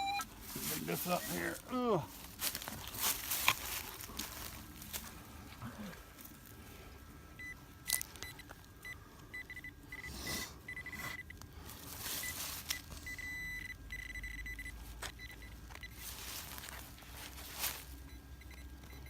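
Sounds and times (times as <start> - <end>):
metal detector pinpointer beeping: 0.0 - 0.3, 7.4 - 11.4, 12.1 - 16.1, 18.1 - 19.0
digging in soil: 0.0 - 13.7, 14.3 - 19.0.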